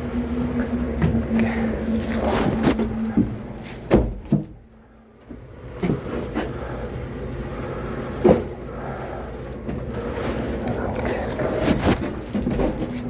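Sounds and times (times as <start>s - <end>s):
steady low hum: 0.0s - 13.0s
firewood thudding and knocking: 1.9s - 4.6s.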